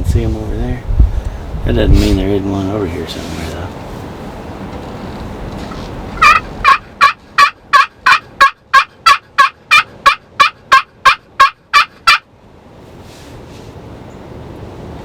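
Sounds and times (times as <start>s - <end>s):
turkey yelps: 6.2s - 12.3s.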